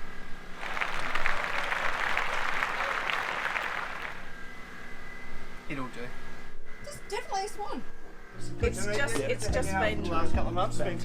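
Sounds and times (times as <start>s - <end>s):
people clapping: 0.6s - 4.3s.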